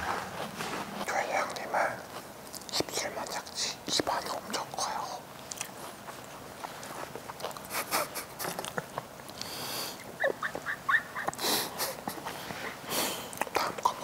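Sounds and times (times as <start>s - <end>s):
squeaky stifled laughs: 10.2s - 12.2s.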